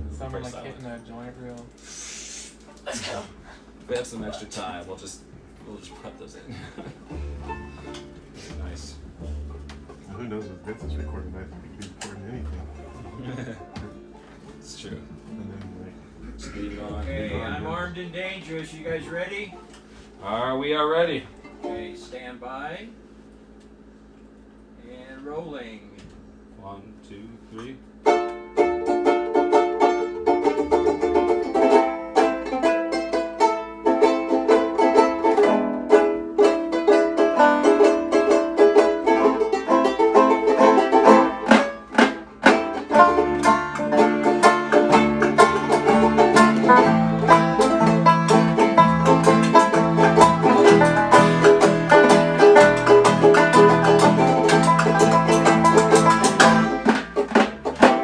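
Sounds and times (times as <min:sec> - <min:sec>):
low bass line: 0:00.0 - 0:00.7, 0:07.1 - 0:14.0, 0:14.6 - 0:19.2, 0:42.9 - 0:57.0
picked acoustic strings: 0:00.0 - 0:01.8, 0:03.7 - 0:22.6, 0:27.6 - 0:58.0.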